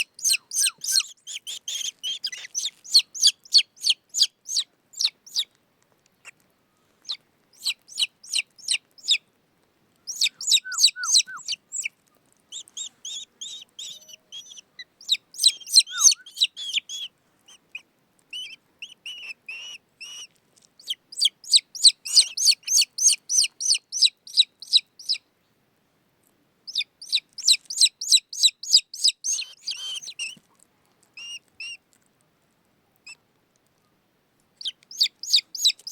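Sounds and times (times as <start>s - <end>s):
raptor chicks begging calls: 0.0s - 5.5s, 7.0s - 9.2s, 10.1s - 11.9s, 12.5s - 25.2s, 26.7s - 30.4s, 34.6s - 35.9s.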